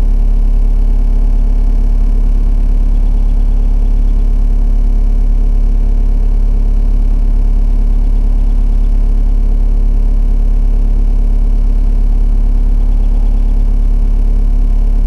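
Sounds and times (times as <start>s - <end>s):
diesel engine droning: 10.0s - 15.0s.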